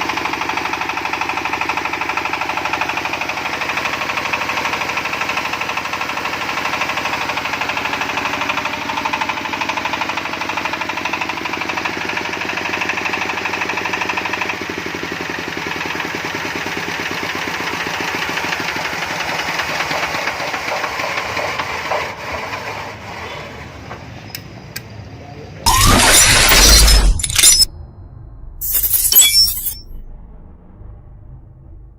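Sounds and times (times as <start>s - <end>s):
diesel engine running: 0.0s - 23.2s.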